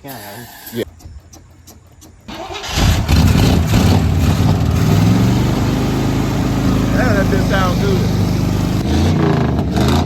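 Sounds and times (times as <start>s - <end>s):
truck engine cranking and running: 0.6s - 10.0s.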